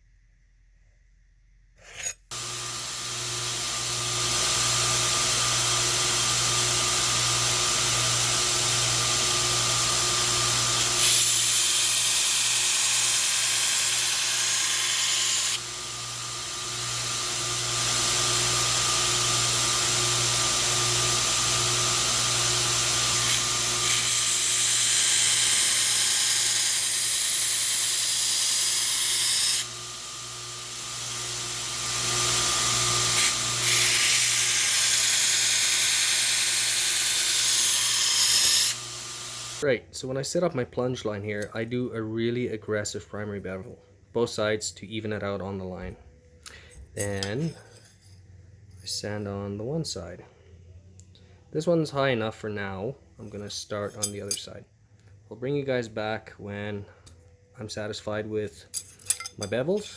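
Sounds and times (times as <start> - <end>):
belt grinder grinding steel: 1.8 - 39.7, 58.7 - 59.9.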